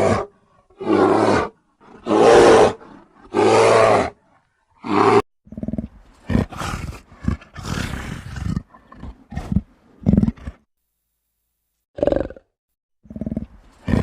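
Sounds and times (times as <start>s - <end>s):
big cat roaring: 0.0s - 4.2s.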